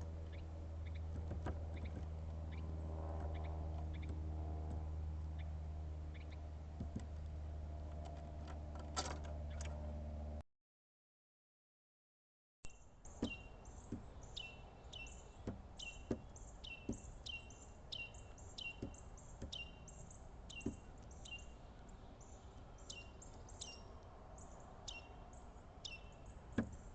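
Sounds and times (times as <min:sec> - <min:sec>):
bird chip calls: 0:12.7 - 0:26.9
steady outdoor hiss: 0:12.7 - 0:26.9.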